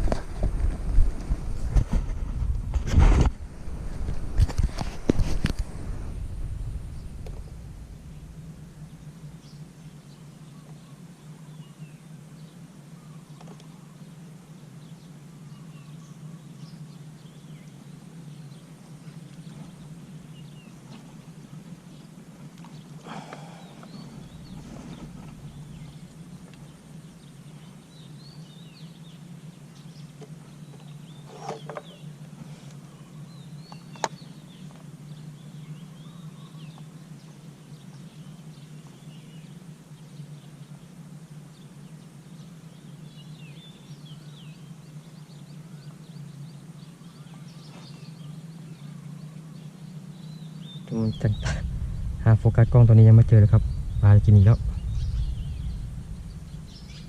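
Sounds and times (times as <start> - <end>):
steady low hum: 0.0 - 57.0
bird chirps: 22.7 - 32.2, 42.8 - 57.0.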